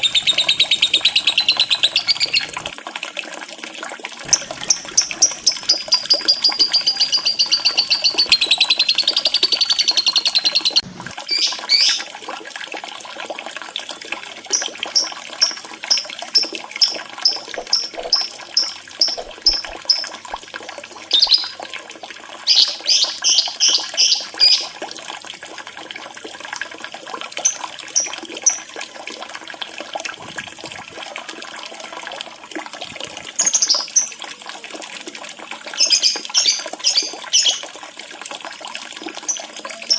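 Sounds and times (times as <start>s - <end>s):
lovebird chattering and chirping: 0.0s - 2.7s, 4.3s - 12.0s, 14.5s - 20.3s, 21.1s - 21.6s, 22.5s - 24.7s, 33.4s - 34.1s
running water: 0.0s - 39.9s.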